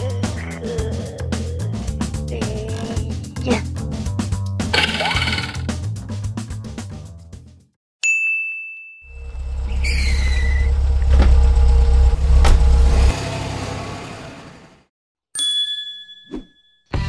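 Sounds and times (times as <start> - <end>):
high ding: 8.0 - 9.1
car engine rumbling: 9.2 - 14.7
squeal falling in pitch: 9.7 - 10.7.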